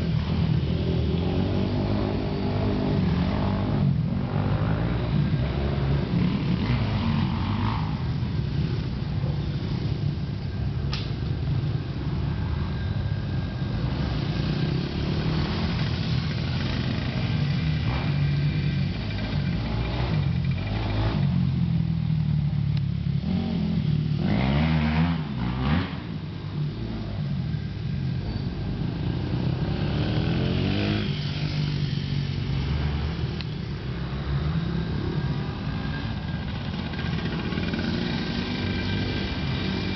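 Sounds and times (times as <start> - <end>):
dirt bike engine revving: 13.9 - 21.7, 23.2 - 27.0, 29.0 - 33.4, 34.0 - 39.9.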